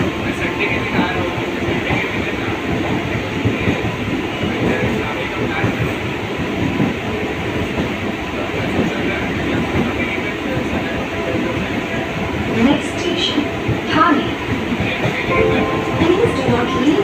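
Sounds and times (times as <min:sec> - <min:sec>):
train wheels rumbling on rails: 0:00.0 - 0:15.3
wheels clickety-clack: 0:01.6 - 0:11.8.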